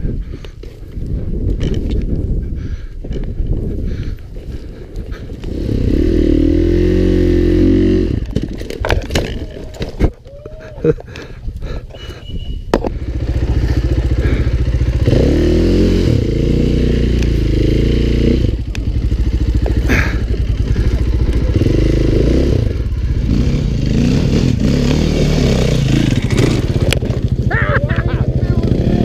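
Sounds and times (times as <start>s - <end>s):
dirt bike engine revving: 5.4s - 9.6s, 12.9s - 29.0s.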